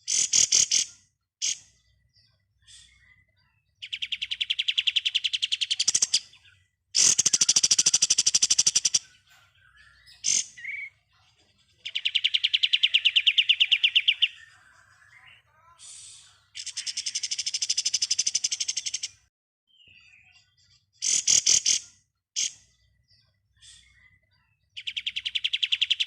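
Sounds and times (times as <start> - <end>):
bird chirps: 0.0 - 26.0
songbird fast trills: 7.0 - 9.1.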